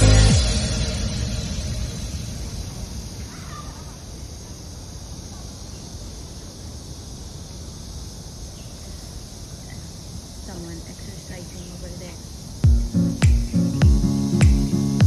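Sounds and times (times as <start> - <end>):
low outdoor rumble: 0.0 - 4.3
faint bird call: 3.2 - 4.3.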